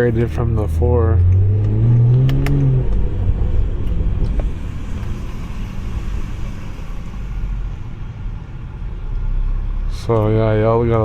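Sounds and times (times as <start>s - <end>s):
car engine note: 0.0s - 10.0s
road and tyre rumble: 0.0s - 11.0s
sharp clicks: 1.2s - 3.1s.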